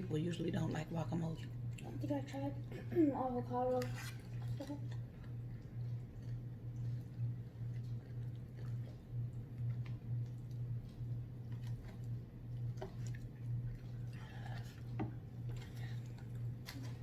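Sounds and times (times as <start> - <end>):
steady low hum: 0.0 - 17.0
person chewing: 4.2 - 17.0.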